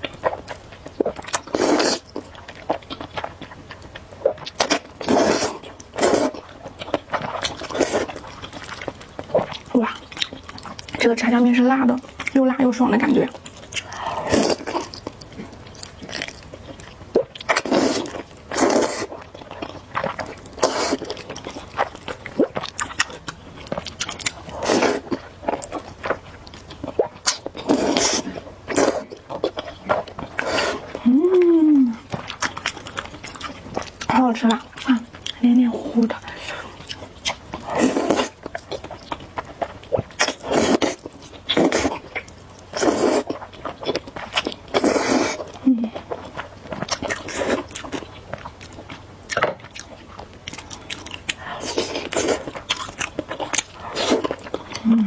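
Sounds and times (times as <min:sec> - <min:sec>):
wet chewing: 0:00.0 - 0:55.0
noodles being slurped: 0:01.0 - 0:02.8, 0:04.2 - 0:11.2, 0:12.4 - 0:26.1, 0:26.9 - 0:35.1, 0:35.8 - 0:38.9, 0:39.9 - 0:42.1, 0:42.7 - 0:48.0, 0:50.6 - 0:55.0
loud noodle slurps: 0:01.5 - 0:02.0, 0:05.0 - 0:06.4, 0:17.6 - 0:19.1, 0:20.6 - 0:21.1, 0:24.5 - 0:25.1, 0:27.6 - 0:29.0, 0:30.4 - 0:30.9, 0:37.6 - 0:38.4, 0:42.8 - 0:43.3, 0:44.7 - 0:45.5.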